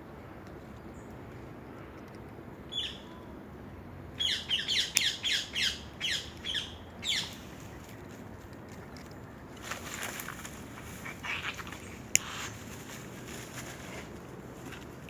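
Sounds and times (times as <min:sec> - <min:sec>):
bird calling harsh notes: 0:04.2 - 0:07.6, 0:09.9 - 0:12.6.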